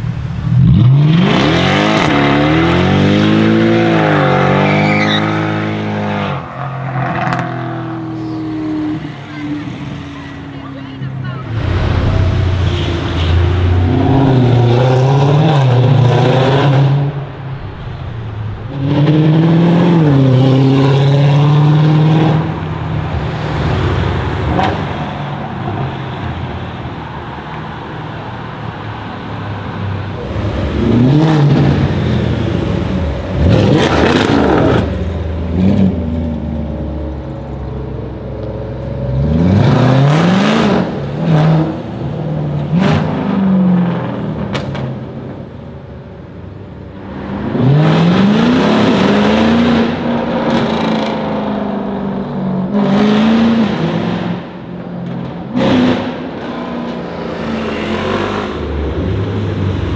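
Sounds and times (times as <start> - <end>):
car engine accelerating: 0.2 - 25.8.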